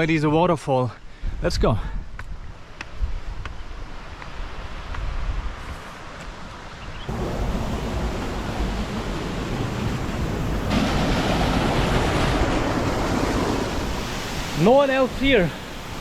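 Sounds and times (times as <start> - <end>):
wind on microphone: 4.7 - 5.9
waterfall rushing: 7.1 - 16.0.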